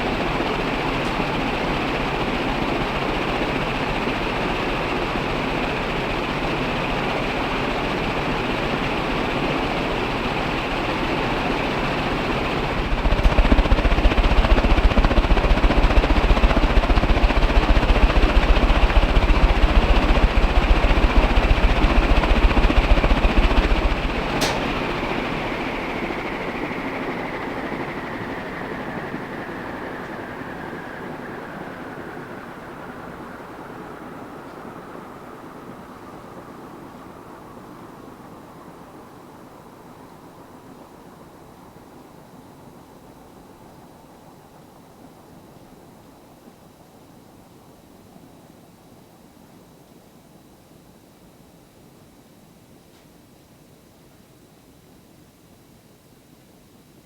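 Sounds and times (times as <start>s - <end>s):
ceiling fan whirring: 0.0s - 50.7s
sharp click: 24.4s - 24.8s.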